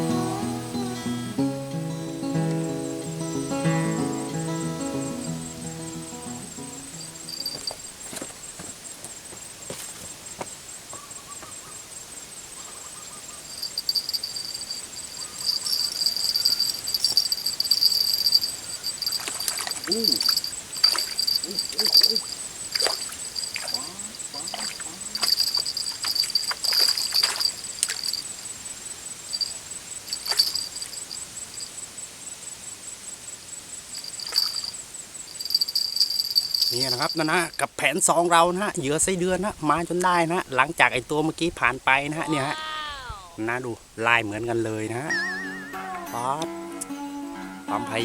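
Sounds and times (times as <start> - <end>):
high-pitched insect chorus: 0.0 - 45.1
faint wavering animal calls: 12.5 - 27.3.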